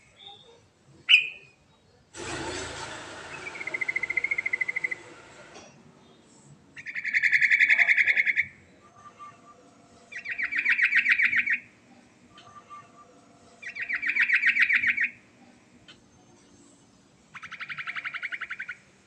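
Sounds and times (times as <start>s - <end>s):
bulbul trilling song: 6.8s - 15.2s.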